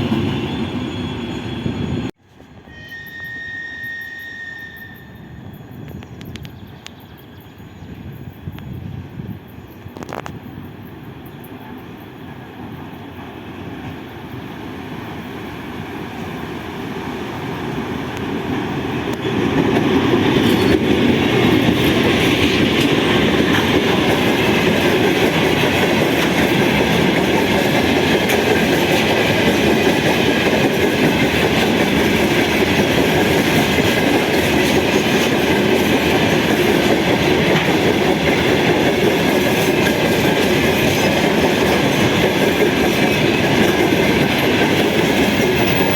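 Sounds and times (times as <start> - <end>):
train passing: 0.0 - 45.9
train wheels clacking over rail joints: 18.1 - 45.9.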